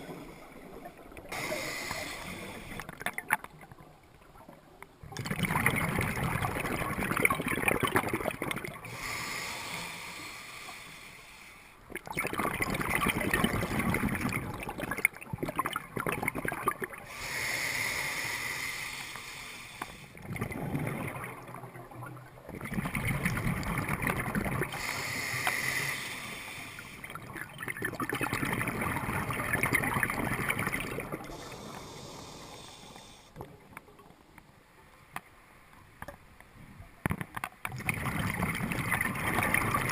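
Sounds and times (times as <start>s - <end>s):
water sloshing and splashing: 2.6s - 8.9s.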